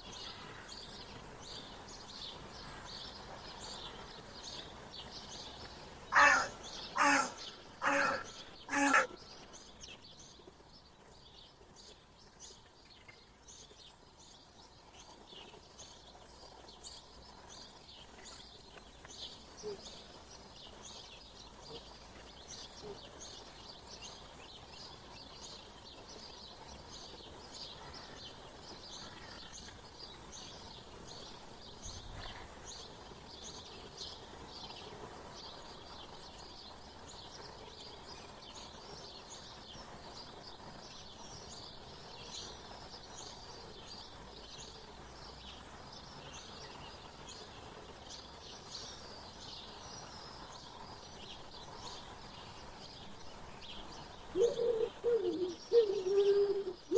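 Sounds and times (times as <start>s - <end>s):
small birds chirping: 0.0s - 56.9s
large bird calling loudly: 6.1s - 9.2s.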